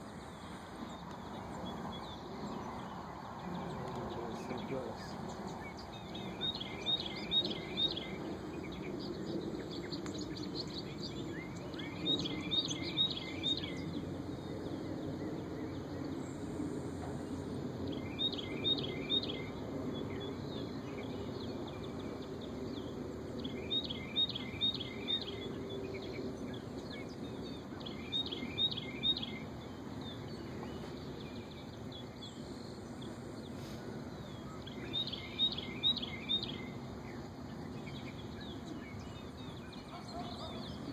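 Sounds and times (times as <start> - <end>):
low outdoor background noise: 0.0 - 40.9
songbird singing: 0.0 - 40.9.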